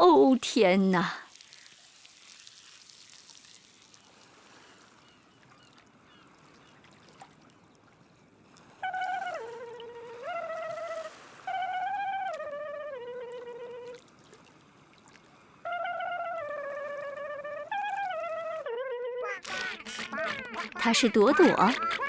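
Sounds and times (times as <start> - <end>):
water trickling: 1.0 - 4.7, 19.2 - 22.0.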